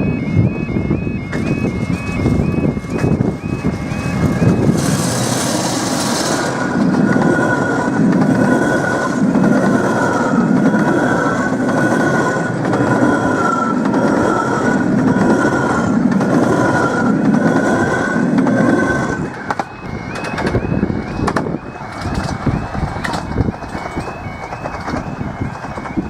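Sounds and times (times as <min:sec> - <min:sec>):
level crossing alarm warbling: 0:00.0 - 0:26.0
miniature train running: 0:00.0 - 0:26.0
wind buffeting microphone: 0:00.0 - 0:26.0.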